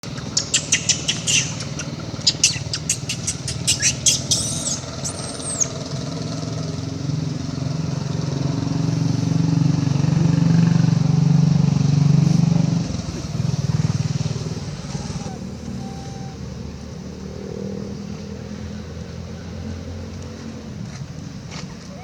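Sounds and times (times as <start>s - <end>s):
low engine hum: 0.0s - 22.0s
rapid high chirps: 0.1s - 5.8s
squealing calls: 0.1s - 5.9s, 14.7s - 16.6s.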